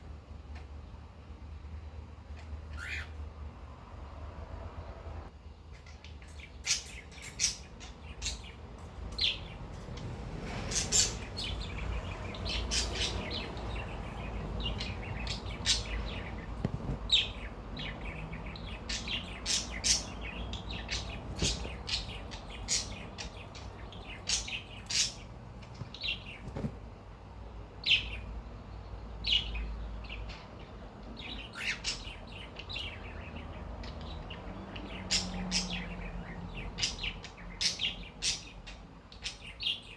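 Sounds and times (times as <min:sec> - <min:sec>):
electric fan hum: 0:00.0 - 0:39.8
cockatiel chirping: 0:02.7 - 0:03.2, 0:10.7 - 0:25.2.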